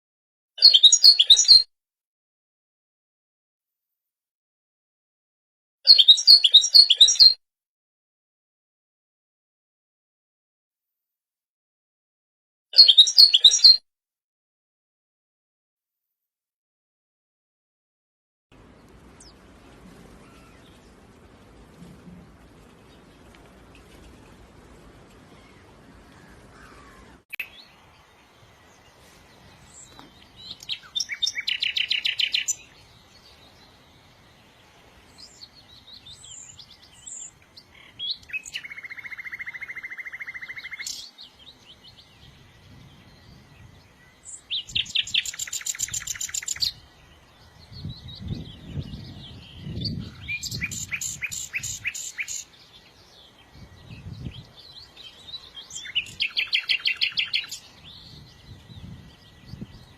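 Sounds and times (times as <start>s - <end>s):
songbird trilling chirps: 0.6s - 1.7s, 5.9s - 7.4s, 12.8s - 13.8s, 25.2s - 59.9s
low rumbling: 18.6s - 27.2s.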